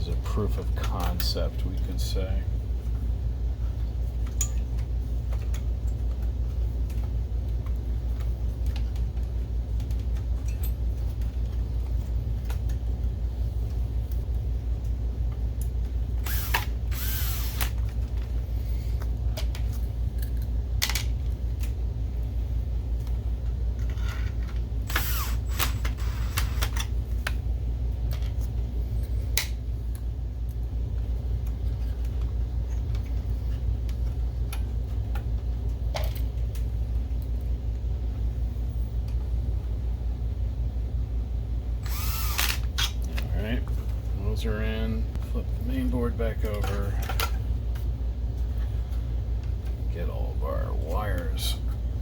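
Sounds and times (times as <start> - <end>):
steady low hum: 0.0 - 52.0
electric screwdriver driving screws: 16.3 - 17.8, 24.9 - 26.8, 41.8 - 42.8.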